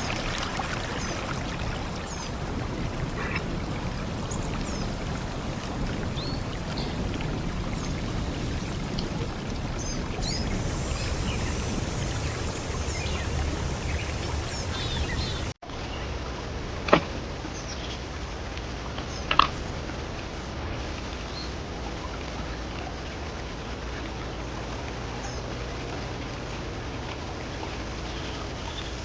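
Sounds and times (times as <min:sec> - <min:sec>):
small birds chirping: 0:00.0 - 0:15.6
stream rushing: 0:00.0 - 0:15.6
thin high hiss: 0:00.0 - 0:15.6.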